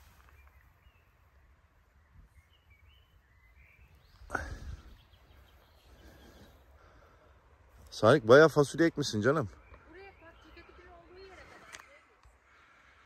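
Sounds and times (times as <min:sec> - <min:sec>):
bird chirps: 0:00.0 - 0:06.9, 0:09.2 - 0:11.7.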